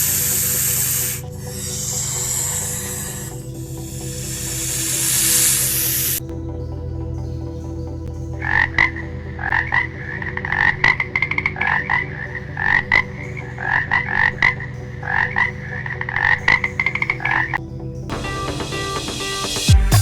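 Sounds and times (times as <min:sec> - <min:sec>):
frog croaking: 0:00.1 - 0:06.2.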